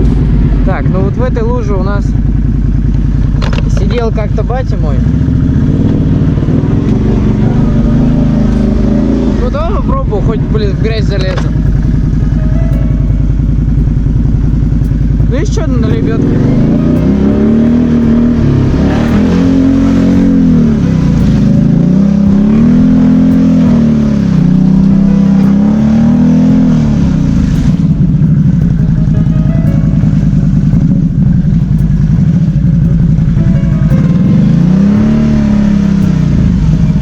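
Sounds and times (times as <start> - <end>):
atv engine revving: 0.0 - 37.0.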